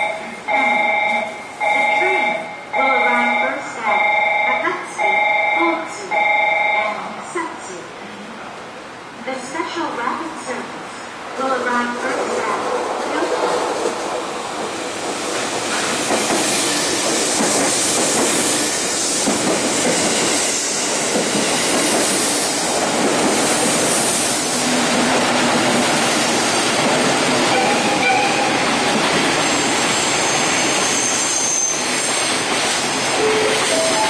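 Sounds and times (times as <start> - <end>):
train wheels rushing on rail: 11.3 - 34.0.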